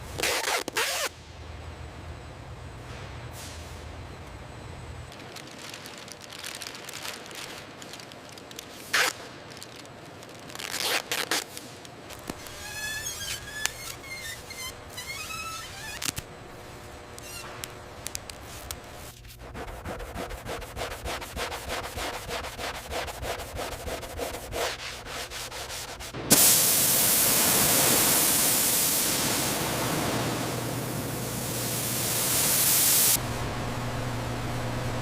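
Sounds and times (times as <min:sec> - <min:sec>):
rubbing strokes on a surface: 0:19.4 - 0:26.2
loud steady hiss: 0:25.2 - 0:35.0.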